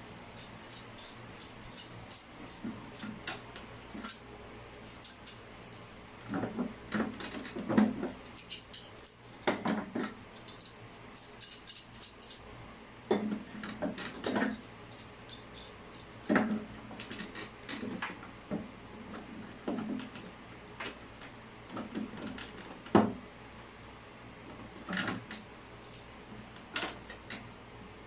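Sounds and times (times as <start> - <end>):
hard objects knocking and clicking: 9.4 - 10.2, 13.1 - 14.6, 16.2 - 21.0, 21.7 - 23.2.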